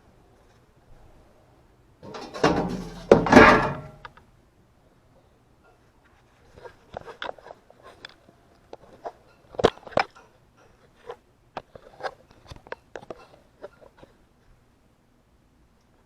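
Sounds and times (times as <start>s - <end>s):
hard objects clicking and knocking: 2.0s - 4.2s.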